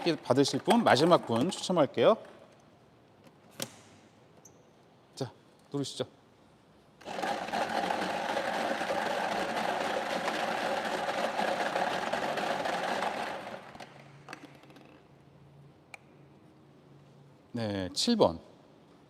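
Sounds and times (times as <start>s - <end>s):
machine whirring: 7.0s - 14.1s
balls rattling: 7.0s - 15.1s.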